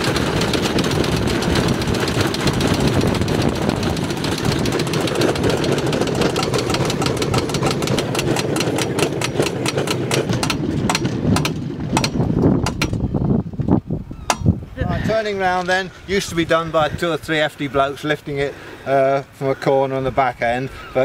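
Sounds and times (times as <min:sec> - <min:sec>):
rail bike clattering on track: 0:00.0 - 0:13.0.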